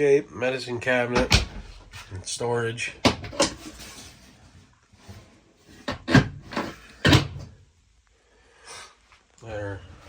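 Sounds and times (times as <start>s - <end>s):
cabinet door knocks and clunks: 1.2s - 2.0s.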